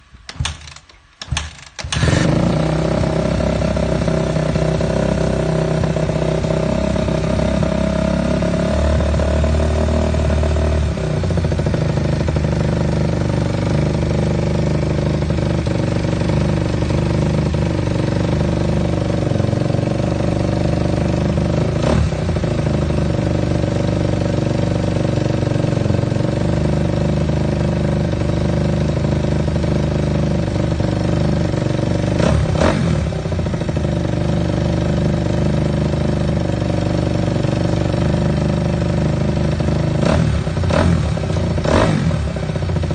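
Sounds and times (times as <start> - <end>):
motorcycle engine starting and idling: 0.0 - 42.9.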